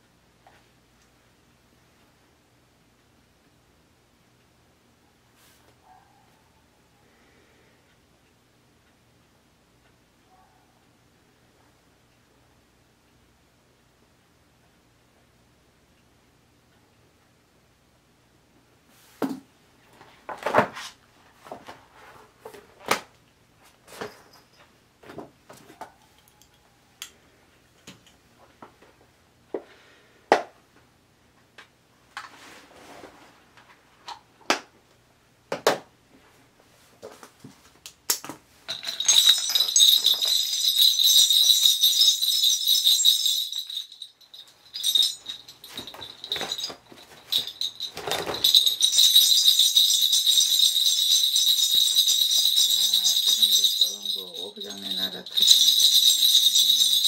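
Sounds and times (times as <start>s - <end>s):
objects clicking and knocking: 38.1s - 54.5s
bell rattle jingling: 38.7s - 57.0s.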